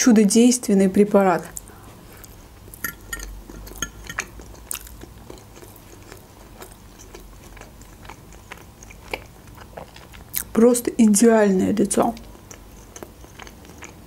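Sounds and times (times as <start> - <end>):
wet chewing of meat: 1.5 - 10.6, 12.2 - 14.0.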